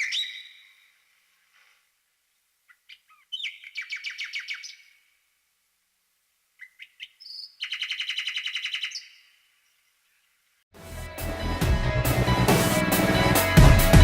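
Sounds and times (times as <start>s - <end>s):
songbird chirping and trilling: 0.0s - 1.0s, 2.7s - 5.1s, 6.6s - 10.3s.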